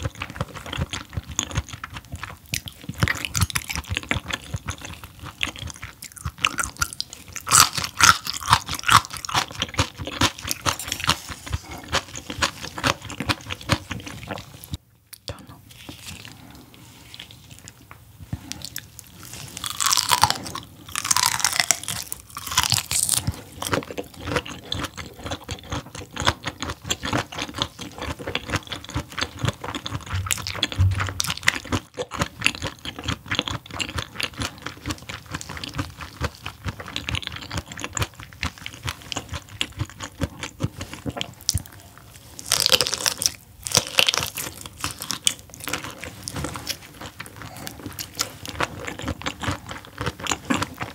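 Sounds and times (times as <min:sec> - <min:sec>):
chewing with wet mouth clicks: 0:00.0 - 0:15.4.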